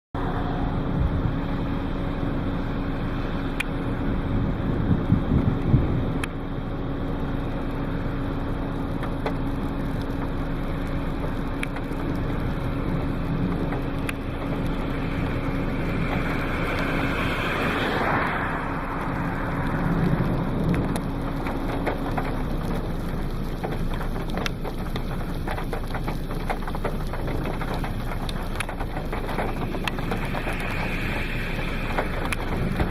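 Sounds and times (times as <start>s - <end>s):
low steady hum: 0.2s - 32.9s
rain: 0.2s - 32.9s
wind: 0.2s - 32.9s
rushing sweep: 14.8s - 20.8s, 29.3s - 32.9s.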